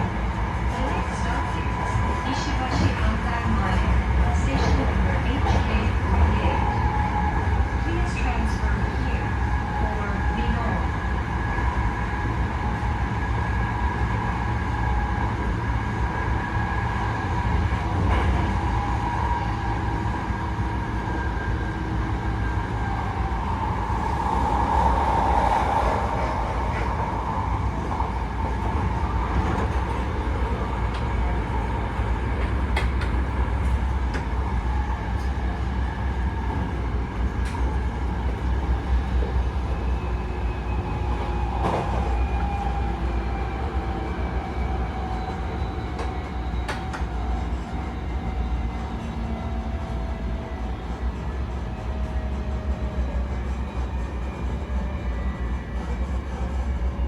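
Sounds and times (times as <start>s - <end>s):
train running rumble: 0.0s - 57.0s.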